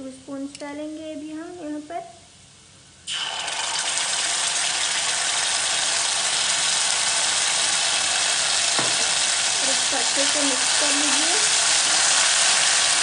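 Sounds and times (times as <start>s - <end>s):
food sizzling in hot oil: 3.0s - 13.0s.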